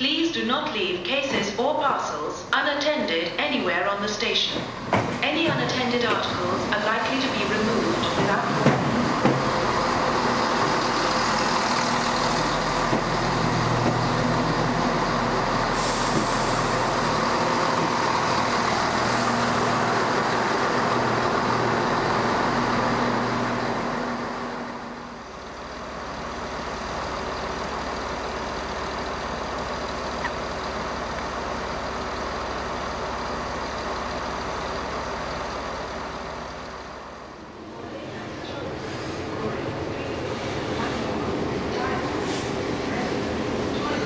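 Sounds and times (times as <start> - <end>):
train diesel engines humming: 0.0 - 44.0.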